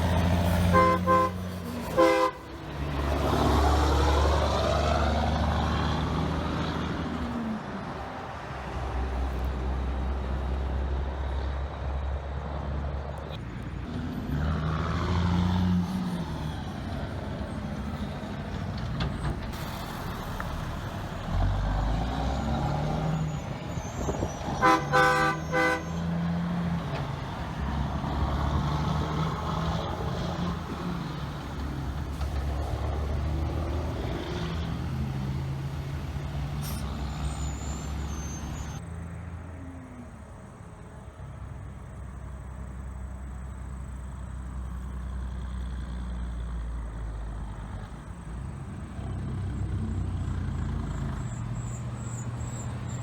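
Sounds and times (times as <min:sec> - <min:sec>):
vehicles passing on a road: 0:00.0 - 0:53.0
multi-tone air horn blasts: 0:00.7 - 0:02.6, 0:24.6 - 0:26.0.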